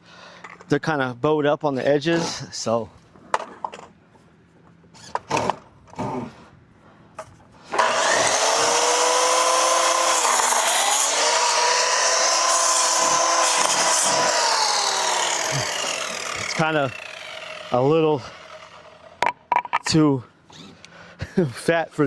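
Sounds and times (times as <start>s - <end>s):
electric saw cutting board: 7.7s - 19.4s.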